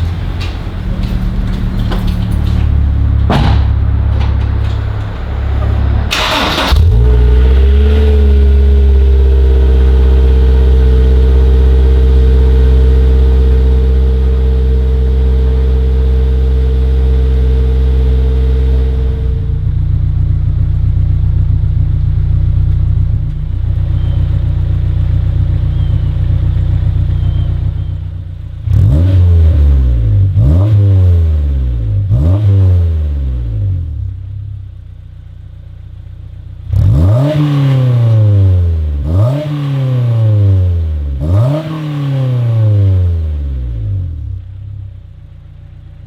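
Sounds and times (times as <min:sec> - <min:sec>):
engine revving with throttle blips: 0:00.0 - 0:19.5, 0:23.3 - 0:34.1, 0:36.6 - 0:44.5
car engine idling: 0:00.0 - 0:29.0, 0:33.7 - 0:37.2, 0:43.0 - 0:46.0.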